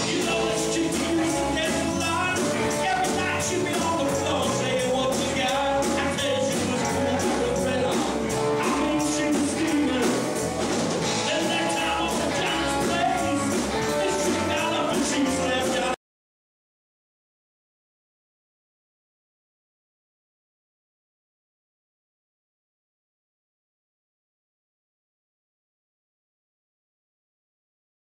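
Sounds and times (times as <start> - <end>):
person singing: 0.0 - 10.5, 11.1 - 16.0
electric guitar: 0.0 - 16.0
live rock band playing: 0.0 - 16.0.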